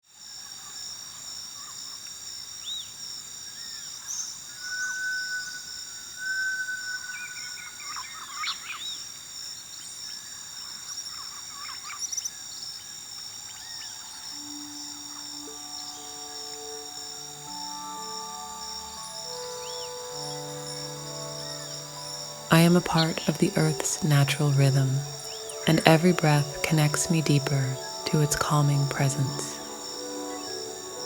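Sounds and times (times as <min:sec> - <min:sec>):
high-pitched insect drone: 0:13.5 - 0:28.4, 0:29.2 - 0:31.0.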